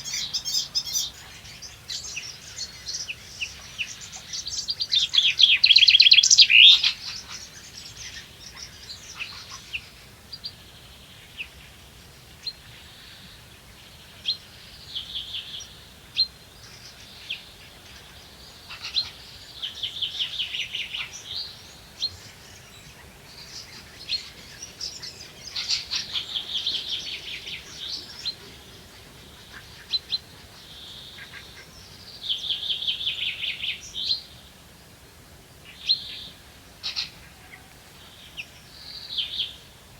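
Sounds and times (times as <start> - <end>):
songbird trilling: 0.0 - 3.1.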